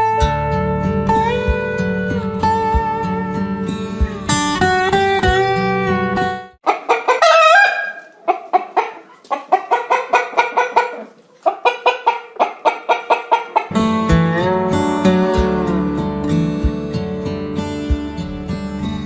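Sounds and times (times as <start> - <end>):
acoustic guitar music: 0.0 - 6.6, 13.7 - 19.0
chicken rising call: 6.6 - 13.7
chickens clucking: 6.6 - 13.8.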